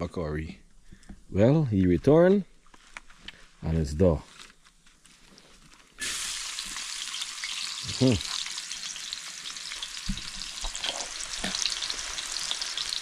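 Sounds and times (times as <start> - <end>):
onion and garlic sizzling in oil: 6.0 - 13.0.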